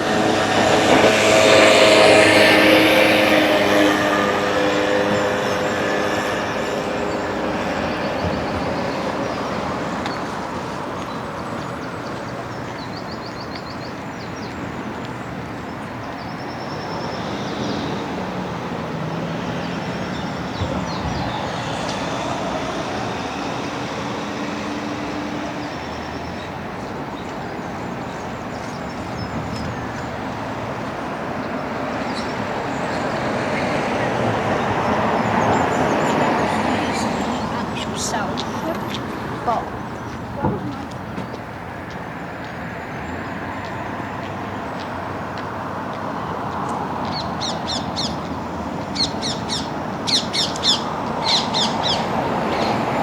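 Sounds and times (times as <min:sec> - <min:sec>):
road traffic hum: 0:00.0 - 0:53.0
people talking: 0:35.3 - 0:41.0.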